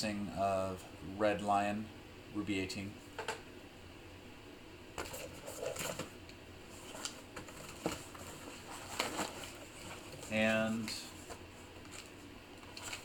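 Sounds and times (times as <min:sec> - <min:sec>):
packaging rustling: 0:06.8 - 0:13.0.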